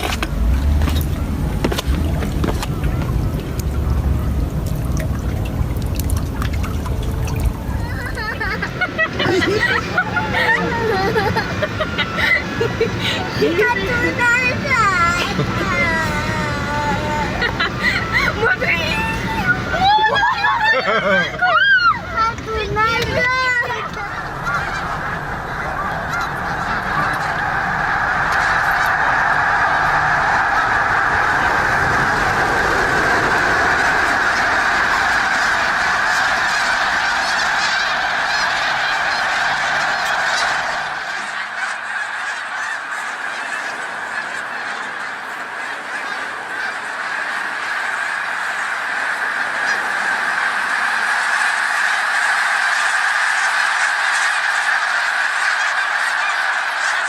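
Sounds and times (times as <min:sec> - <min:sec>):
low rumble: 0:00.0 - 0:20.6, 0:22.1 - 0:43.0
flock of geese honking: 0:00.0 - 0:57.0.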